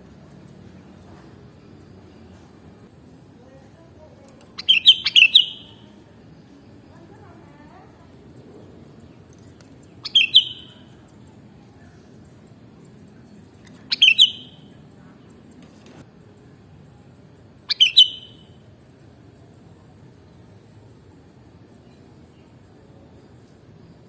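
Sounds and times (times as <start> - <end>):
low steady background noise: 0.0 - 24.0
bird chirping: 4.4 - 5.9, 8.9 - 14.8, 17.6 - 18.6.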